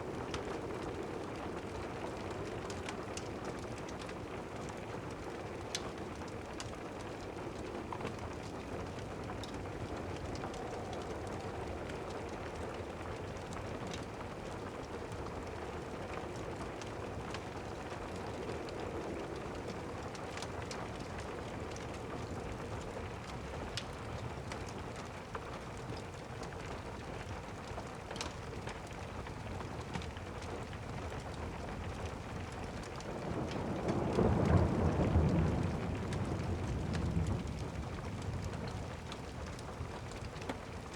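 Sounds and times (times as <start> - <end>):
steady rain: 0.0 - 40.9
fireplace crackling: 5.4 - 24.3
thunder rumble: 33.0 - 40.0.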